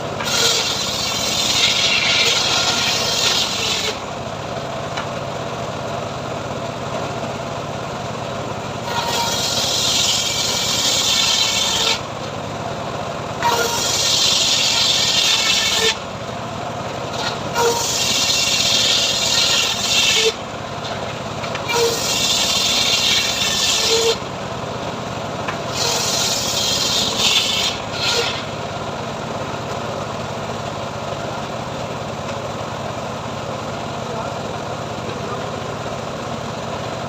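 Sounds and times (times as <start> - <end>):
saw blade cutting wood: 0.0 - 4.0, 8.8 - 12.1, 13.4 - 16.0, 17.1 - 24.2, 25.5 - 28.6
sawmill engine running: 0.0 - 37.0.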